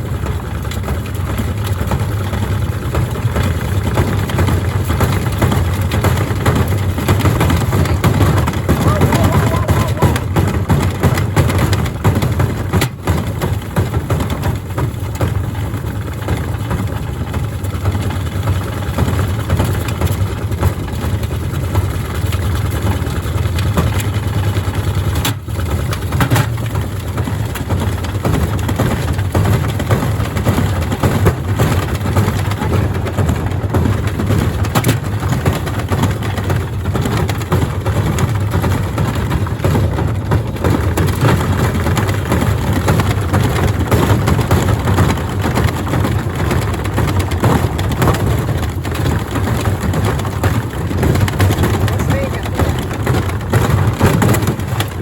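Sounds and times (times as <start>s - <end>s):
washing machine rumbling: 0.0s - 55.0s
knocks and thuds of unbalanced load: 23.0s - 55.0s.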